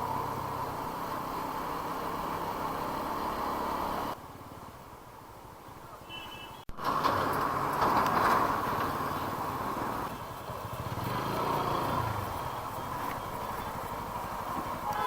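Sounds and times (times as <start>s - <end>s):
motorcycle engine running: 9.9s - 15.0s.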